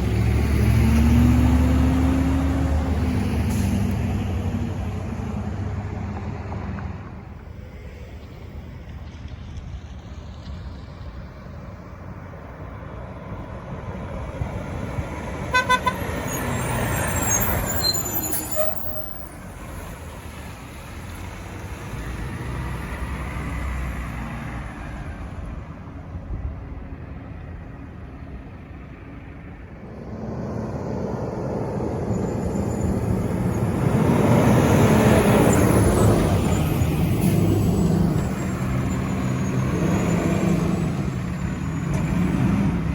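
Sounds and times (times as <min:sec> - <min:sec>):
garbage trucks driving past: 0:00.0 - 0:42.9
truck horn honk: 0:15.5 - 0:16.5.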